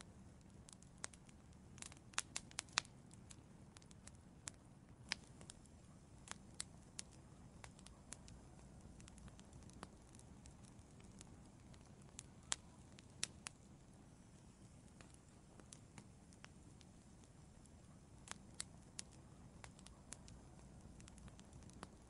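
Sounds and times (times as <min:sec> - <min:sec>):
faint low steady hiss: 0:00.0 - 0:22.0
wood fire crackling and popping: 0:00.0 - 0:22.0.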